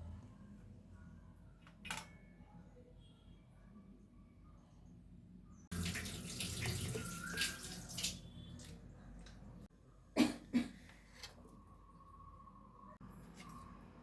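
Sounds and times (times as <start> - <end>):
water running: 5.7 - 9.6.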